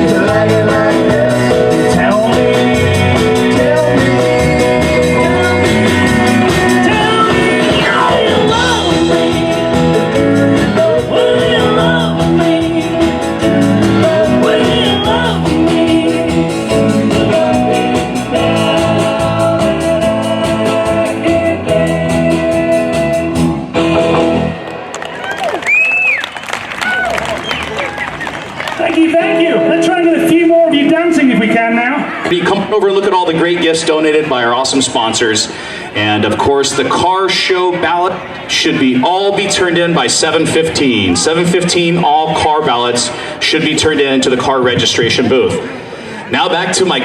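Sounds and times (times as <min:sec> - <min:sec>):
person singing: 0:00.0 - 0:24.6
live rock band playing: 0:00.0 - 0:25.3, 0:28.6 - 0:32.3
electric guitar: 0:00.0 - 0:25.6.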